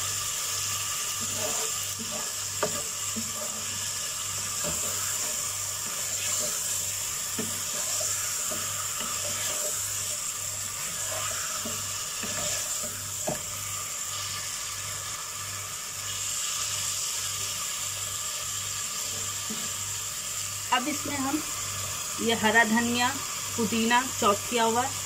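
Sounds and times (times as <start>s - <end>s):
meat sizzling in oil: 0.0s - 25.0s
potatoes frying in a wok: 0.0s - 25.0s
spatula stirring and scraping pot: 1.0s - 15.2s.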